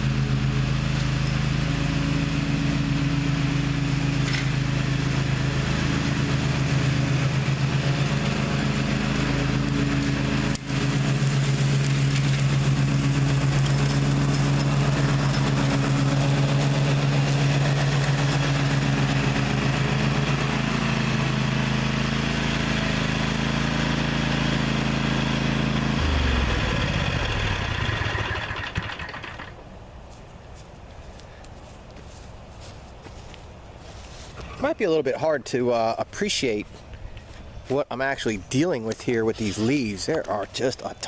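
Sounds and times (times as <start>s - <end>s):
mower engine running: 0.0s - 29.7s.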